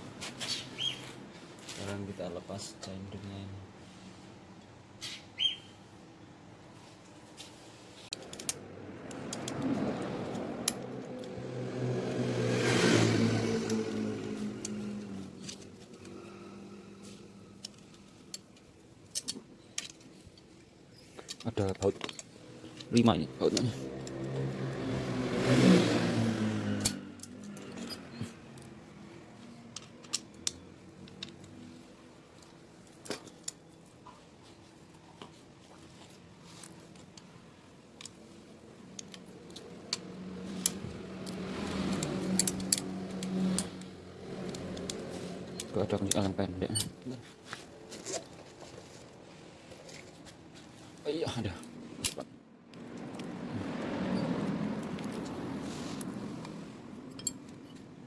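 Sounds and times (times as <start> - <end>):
metallic clicks and clinks: 8.1 - 11.4, 26.8 - 34.0, 36.5 - 47.2, 56.0 - 58.0
passing motor engine: 8.6 - 17.6, 22.8 - 29.6, 39.3 - 46.6, 52.8 - 57.8.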